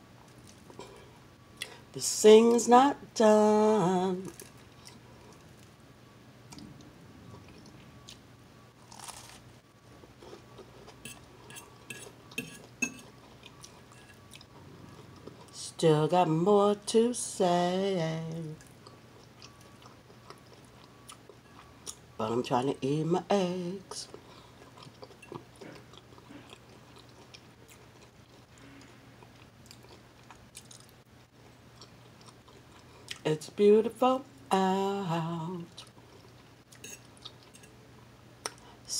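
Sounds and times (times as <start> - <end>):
low steady hum: 0.0 - 38.9
faint chewing and mouth clicks: 4.3 - 5.7, 10.2 - 15.6, 18.3 - 22.0, 24.1 - 33.3
person biting and chewing: 8.8 - 9.4.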